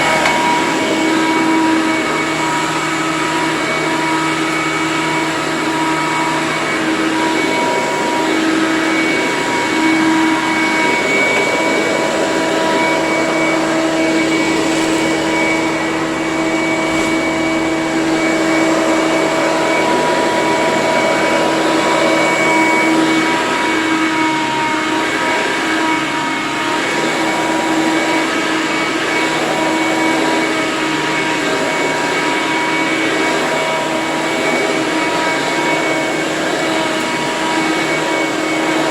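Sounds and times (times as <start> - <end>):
upright vacuum cleaner running: 0.0 - 38.9.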